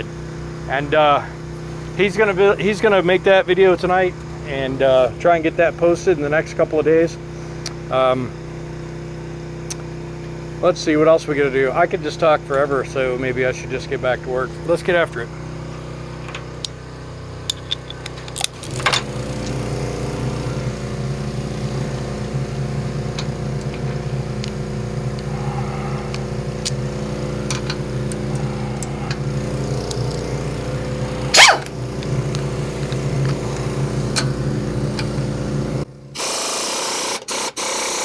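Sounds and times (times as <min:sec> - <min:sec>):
engine running steadily: 0:00.0 - 0:37.2.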